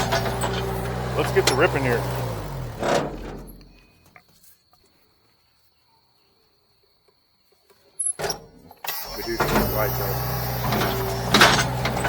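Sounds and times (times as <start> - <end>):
sawmill engine winding down: 0.0 - 3.6, 8.8 - 12.0.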